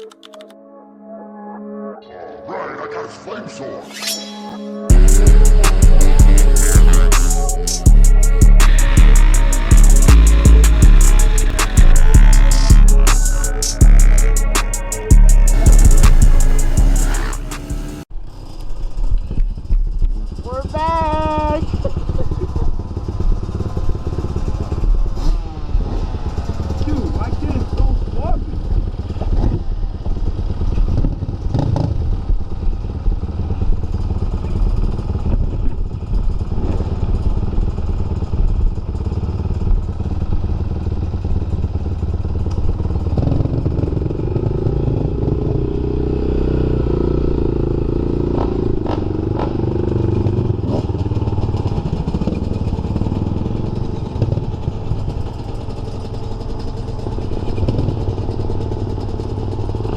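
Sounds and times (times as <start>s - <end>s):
dirt bike engine: 4.9s - 45.4s.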